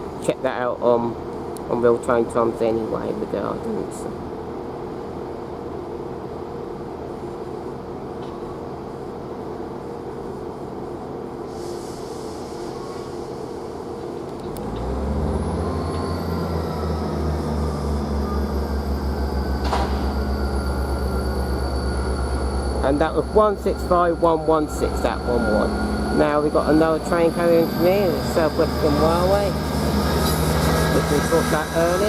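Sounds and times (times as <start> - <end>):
train diesel engines droning: 10.4 - 32.0.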